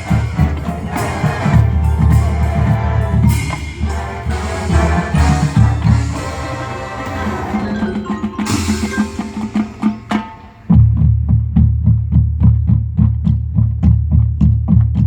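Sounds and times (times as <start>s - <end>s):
mallet percussion: 0.0s - 11.0s
marching band playing: 0.0s - 11.1s
drum hits: 0.0s - 13.2s.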